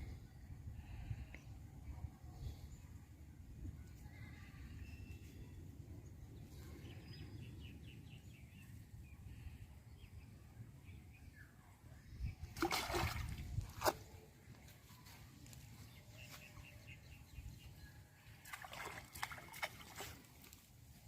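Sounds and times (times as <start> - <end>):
water sloshing and splashing: 12.5 - 14.3, 18.3 - 20.8.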